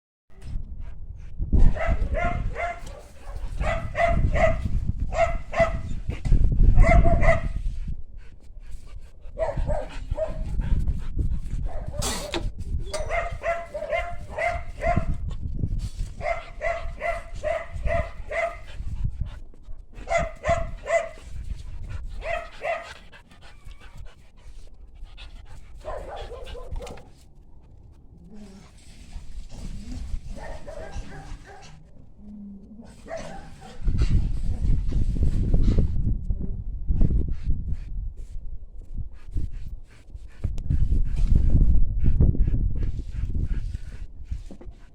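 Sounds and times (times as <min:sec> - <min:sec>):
dog barking: 0:01.6 - 0:05.9, 0:06.8 - 0:07.6, 0:09.4 - 0:10.5, 0:11.7 - 0:12.2, 0:13.0 - 0:15.2, 0:16.2 - 0:18.7, 0:20.0 - 0:21.2, 0:22.2 - 0:22.9, 0:25.8 - 0:27.1, 0:30.3 - 0:31.8, 0:33.0 - 0:33.8.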